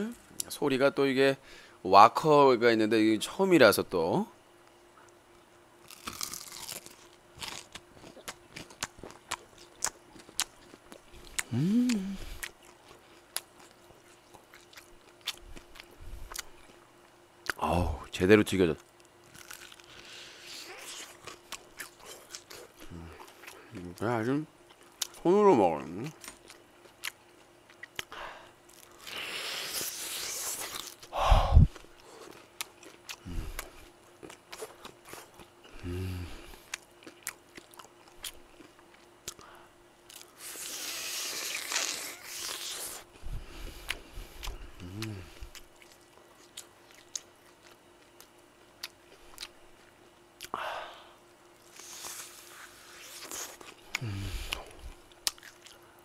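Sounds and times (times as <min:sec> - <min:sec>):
crunchy chewing: 0:05.0 - 0:17.6, 0:18.7 - 0:25.2, 0:26.0 - 0:31.1, 0:31.7 - 0:50.6, 0:51.6 - 0:56.0
person humming in enjoyment: 0:11.4 - 0:12.4, 0:35.8 - 0:36.4, 0:44.7 - 0:45.5, 0:54.0 - 0:54.6.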